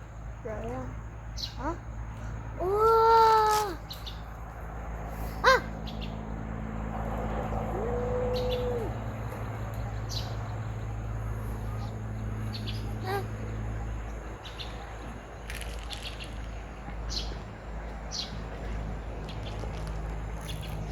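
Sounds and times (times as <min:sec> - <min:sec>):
bird calling: 0:00.6 - 0:02.0, 0:05.2 - 0:06.2, 0:07.6 - 0:10.4
steady bird hoot: 0:05.3 - 0:05.8, 0:07.6 - 0:09.3.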